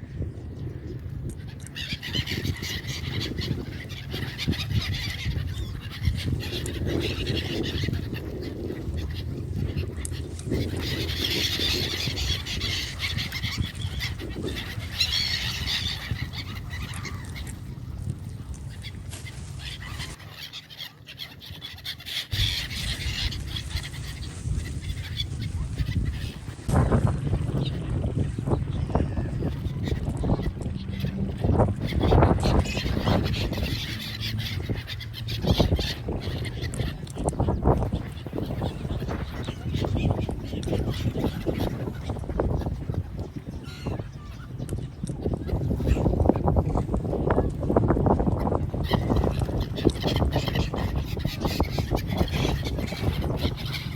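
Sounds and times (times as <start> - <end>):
birds calling: 0.1 - 53.9
high chirping chatter: 18.5 - 53.9
low rumble: 22.4 - 36.8.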